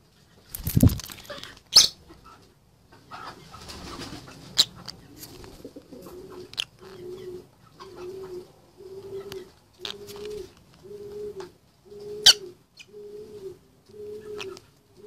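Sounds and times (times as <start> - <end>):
bird cooing: 5.1 - 15.0.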